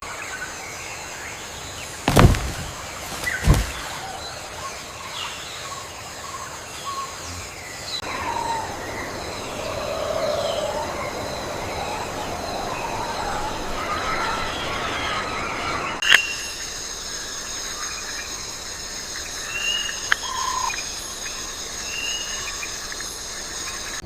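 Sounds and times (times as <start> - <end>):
high insect hiss: 0.1 - 24.0
birds chirping and calling: 6.7 - 16.7.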